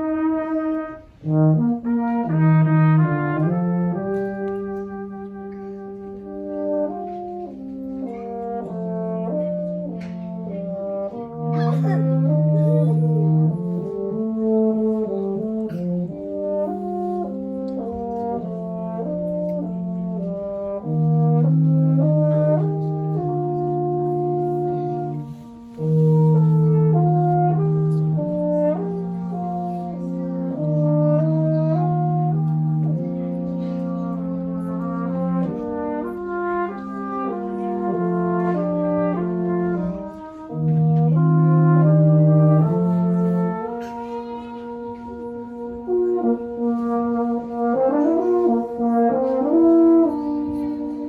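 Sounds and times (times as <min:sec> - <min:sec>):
brass quartet playing: 0:00.0 - 0:51.0.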